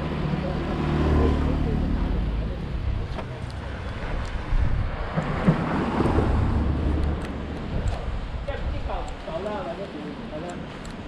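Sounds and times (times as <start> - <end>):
vehicle passing: 0.0 - 8.4
road traffic rumbling: 0.0 - 11.0
wind on microphone: 3.6 - 9.3.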